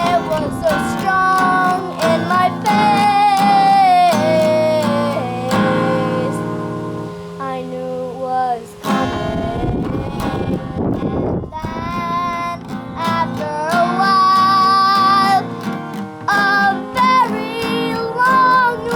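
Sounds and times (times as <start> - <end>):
child singing: 0.0 - 6.6, 7.4 - 18.9
acoustic guitar: 0.0 - 18.9.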